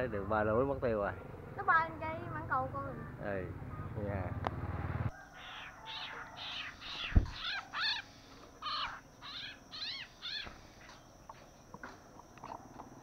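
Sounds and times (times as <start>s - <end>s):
songbird chirping: 0.8s - 13.0s
dull thump: 7.1s - 7.4s.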